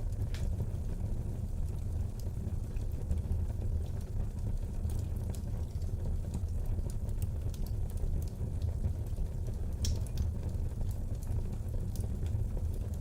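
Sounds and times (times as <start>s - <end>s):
low fire rumble: 0.0s - 13.0s
wood fire crackling and popping: 0.0s - 13.0s
loud fire snap: 9.8s - 10.3s.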